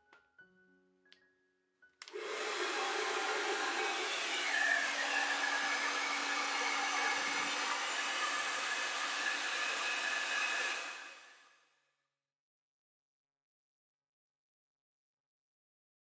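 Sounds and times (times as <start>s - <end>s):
hair dryer blowing: 2.1s - 11.5s.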